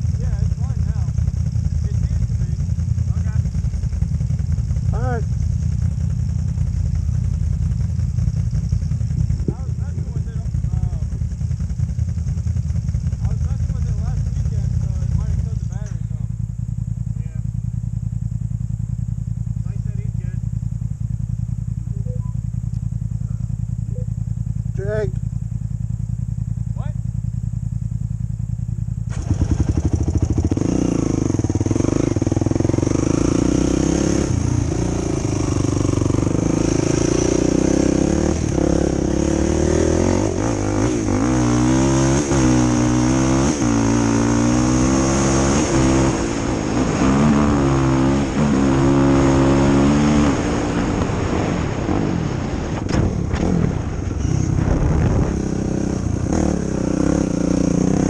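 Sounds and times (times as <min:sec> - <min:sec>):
quad engine revving: 0:00.0 - 0:16.3, 0:29.1 - 0:58.0.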